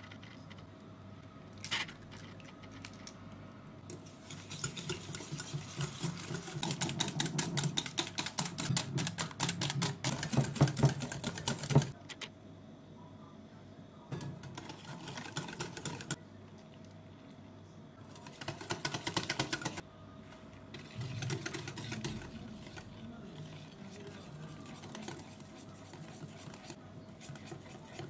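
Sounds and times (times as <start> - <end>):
whisk rattling against bowl: 3.9 - 12.0, 14.1 - 16.2, 18.1 - 19.8, 20.7 - 28.0
whisk ticking in batter: 3.9 - 12.0, 14.5 - 16.2, 18.1 - 19.8, 20.7 - 28.0.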